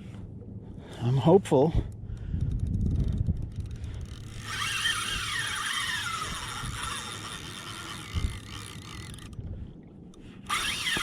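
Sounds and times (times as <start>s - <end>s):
fishing reel gear whine: 3.2s - 9.5s, 10.4s - 11.0s.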